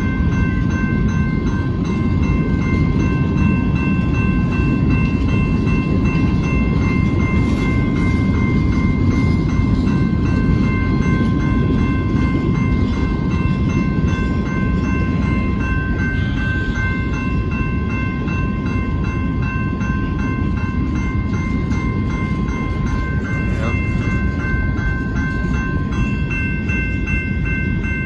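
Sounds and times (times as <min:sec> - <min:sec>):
crossing warning bell ringing: 0:00.0 - 0:28.0.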